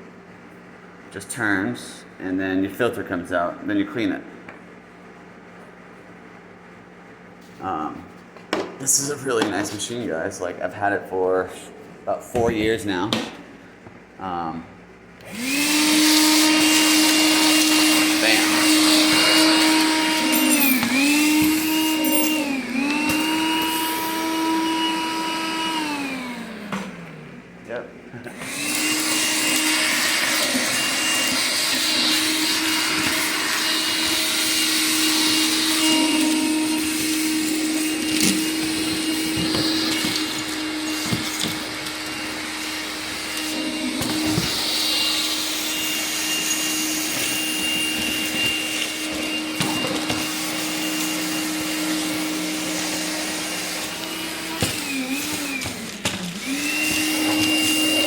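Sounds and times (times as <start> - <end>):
cordless vacuum whine: 15.2 - 27.6, 28.2 - 58.0.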